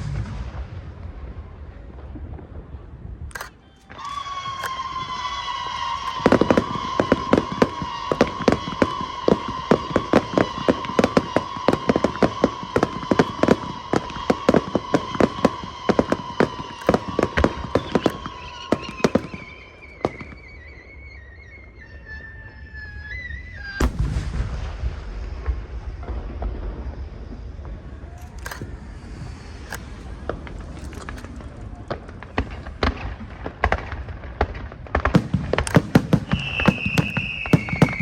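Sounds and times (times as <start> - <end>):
deep firework boom: 0.0 - 1.6, 23.8 - 28.0
fireworks cracking: 3.3 - 20.4, 23.8 - 38.0.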